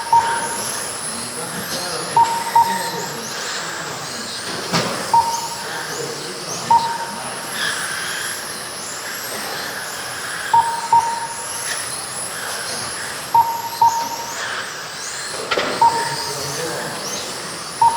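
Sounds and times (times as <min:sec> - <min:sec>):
short beeps: 0:00.0 - 0:00.9, 0:02.1 - 0:03.1, 0:05.1 - 0:06.0, 0:06.7 - 0:07.3, 0:10.6 - 0:11.6, 0:13.4 - 0:14.5, 0:15.8 - 0:16.6
rc car motors whining: 0:00.0 - 0:13.4, 0:14.0 - 0:17.9.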